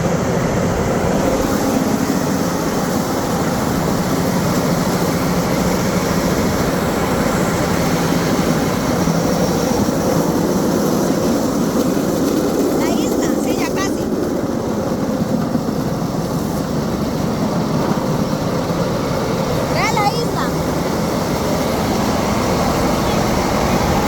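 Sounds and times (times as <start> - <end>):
engine drone: 0.0 - 24.0.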